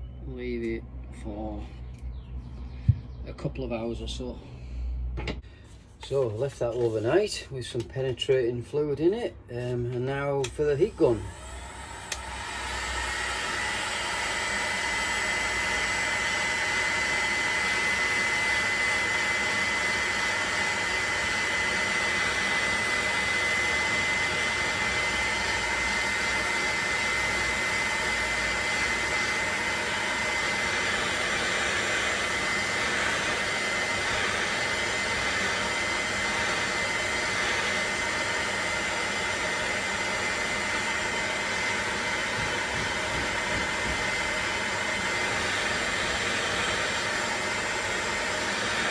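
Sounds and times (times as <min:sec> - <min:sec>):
heat gun high whine: 0:10.4 - 0:48.9
heat gun blowing air: 0:10.8 - 0:48.9.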